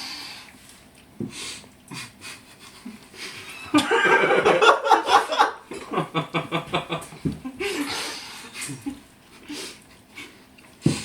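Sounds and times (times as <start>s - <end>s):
loud choppy laughter: 2.0s - 7.9s.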